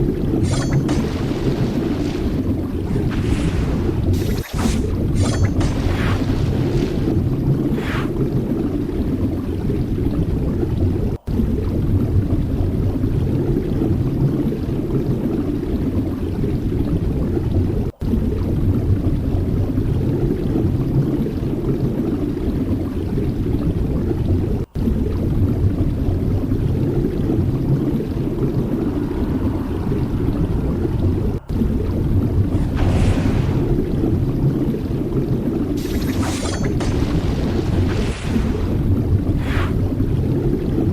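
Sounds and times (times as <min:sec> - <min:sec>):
steady low rumbling: 0:23.4 - 0:36.1, 0:36.7 - 0:40.9.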